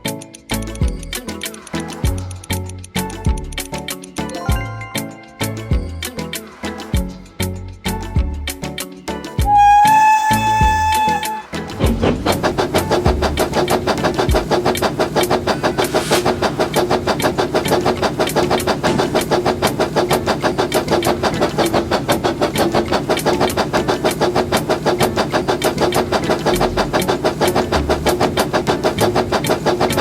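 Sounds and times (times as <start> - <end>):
toy train humming: 9.4 - 30.0
rapid clicks: 10.8 - 30.0.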